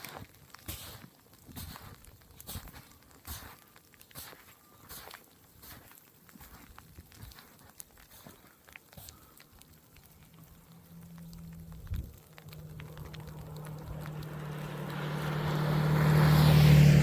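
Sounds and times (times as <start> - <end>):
light ticks and crunches: 0.0 - 16.7
vehicle engine hum: 9.7 - 17.0.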